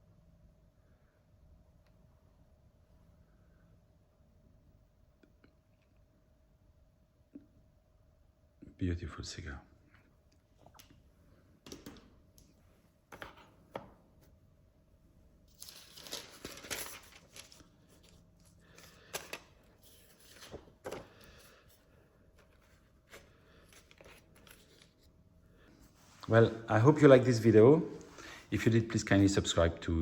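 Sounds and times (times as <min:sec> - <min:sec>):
paper rustling and crinkling: 0:15.5 - 0:25.1.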